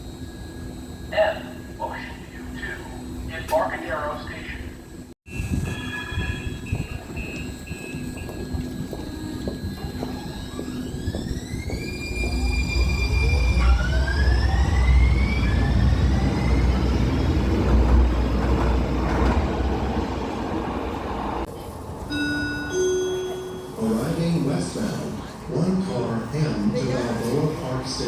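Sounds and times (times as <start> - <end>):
wheels rumbling on rails: 5.3 - 22.1
traction motors whining: 5.4 - 21.4.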